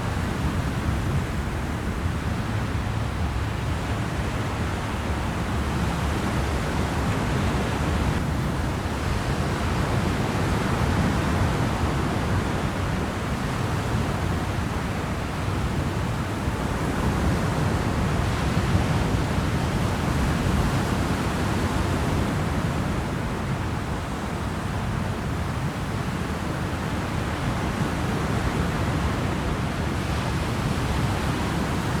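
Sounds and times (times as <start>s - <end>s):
wind and water rushing: 0.0s - 32.0s.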